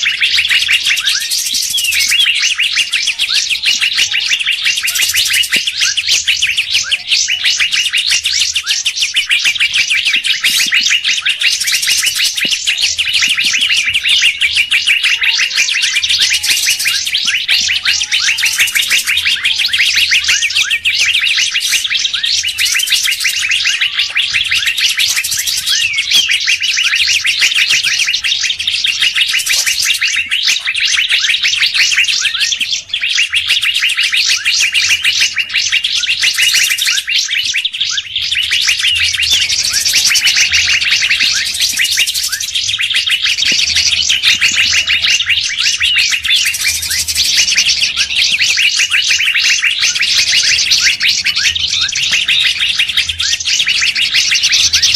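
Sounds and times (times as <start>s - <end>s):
songbird chattering chirps: 0.0s - 54.9s.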